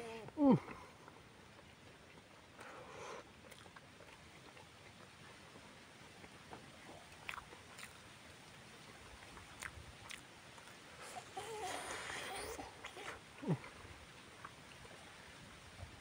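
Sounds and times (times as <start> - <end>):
person chewing food: 1.6 - 15.1
wet mouth clicks and smacks: 3.4 - 5.0, 6.8 - 8.0, 9.3 - 10.8.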